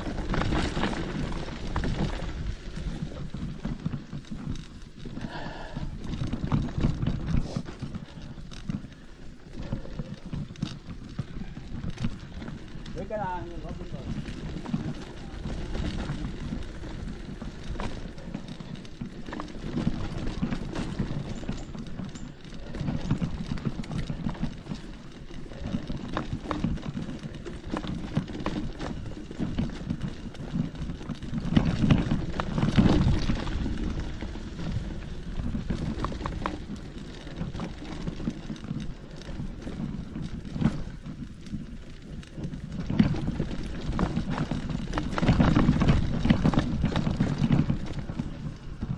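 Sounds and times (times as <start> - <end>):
footsteps on forest trail: 0.0 - 48.9.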